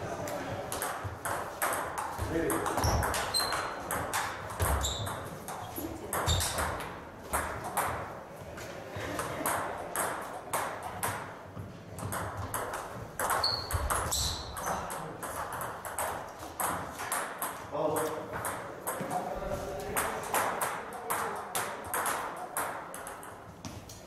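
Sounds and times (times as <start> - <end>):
table tennis balls clicking: 0.7 - 8.2, 9.1 - 24.0
short high squeaks: 2.8 - 3.8, 4.8 - 5.2, 13.2 - 14.7.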